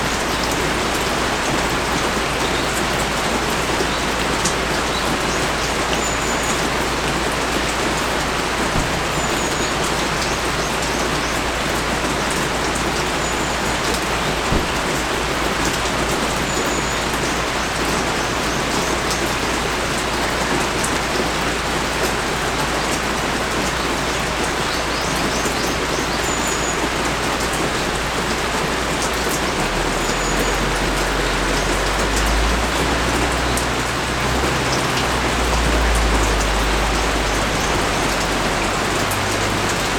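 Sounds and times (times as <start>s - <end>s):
rain pouring and pattering: 0.0s - 39.9s.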